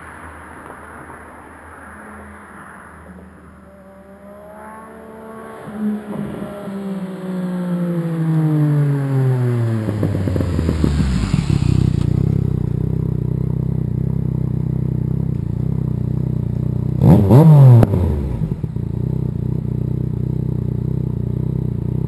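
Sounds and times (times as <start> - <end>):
exhaust crackles and pops: 0.0 - 3.6, 9.7 - 14.1
motorcycle engine revving down: 3.6 - 22.0.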